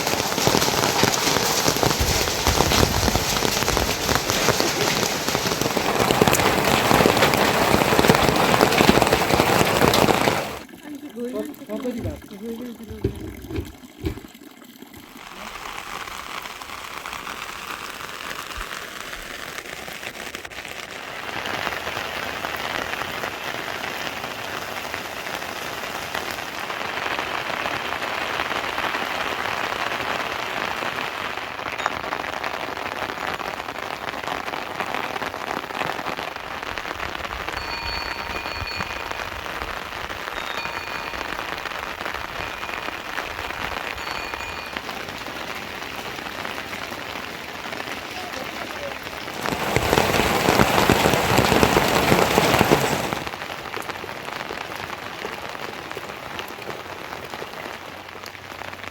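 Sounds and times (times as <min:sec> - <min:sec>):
steady rain falling: 0:00.0 - 0:14.2, 0:15.1 - 0:58.9
faint high-pitched tones: 0:40.3 - 0:43.2, 0:43.9 - 0:44.9.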